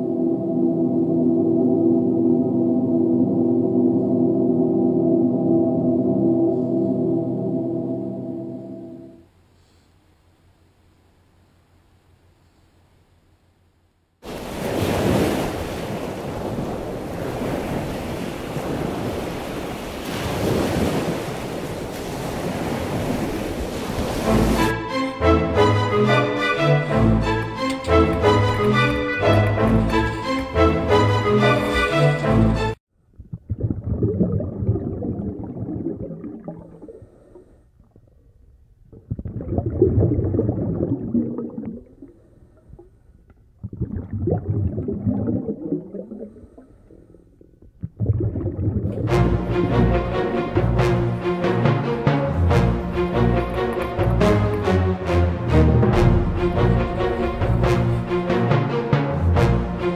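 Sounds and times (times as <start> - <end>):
churning water underwater: 14.2 - 24.8, 33.0 - 59.9.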